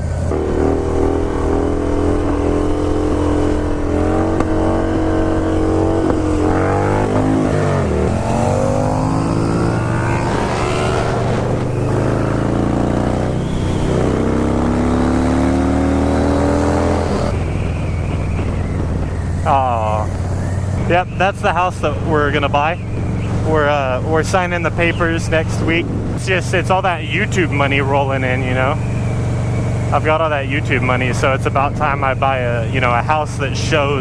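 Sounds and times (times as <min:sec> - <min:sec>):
motorcycle engine changing gear: 0:00.0 - 0:26.6
motorcycle engines droning: 0:00.0 - 0:34.0.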